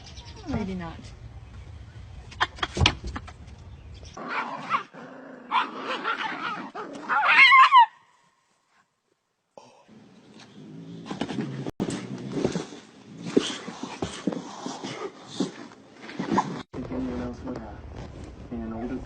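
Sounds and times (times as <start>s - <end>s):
pet yelping and whining: 5.5s - 8.0s.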